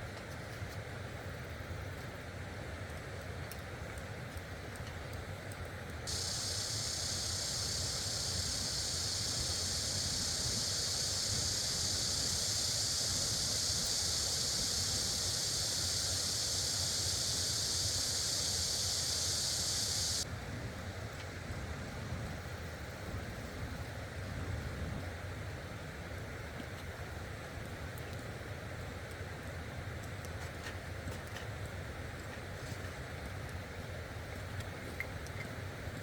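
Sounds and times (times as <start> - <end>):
loud even hiss: 6.1 - 20.3.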